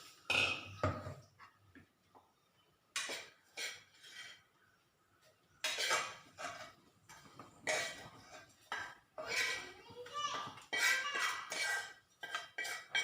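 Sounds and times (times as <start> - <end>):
metal utensils and dishes clinking: 3.0 - 4.5, 5.6 - 13.0.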